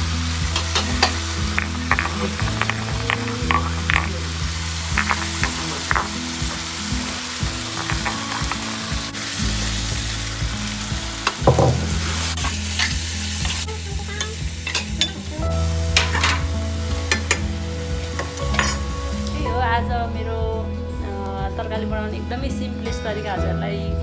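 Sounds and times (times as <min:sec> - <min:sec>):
curry sizzling in a pan: 0:00.0 - 0:19.6
spoon scraping a pan: 0:00.6 - 0:10.0, 0:11.3 - 0:15.2, 0:15.9 - 0:19.4
knock: 0:11.5 - 0:12.3.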